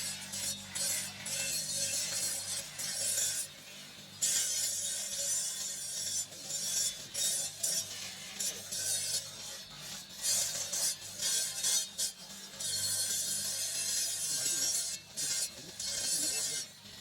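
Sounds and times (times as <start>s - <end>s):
abrasive rasping on marble: 4.2s - 17.0s.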